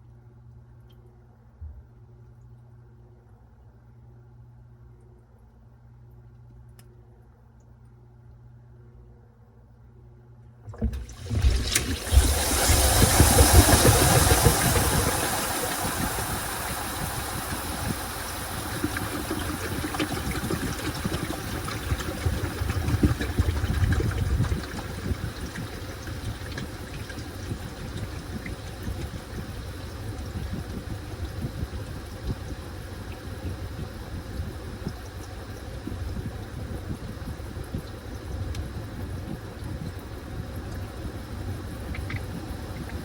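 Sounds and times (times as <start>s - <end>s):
washing machine churning and sloshing: 10.6s - 43.0s
rush of water: 10.7s - 29.1s.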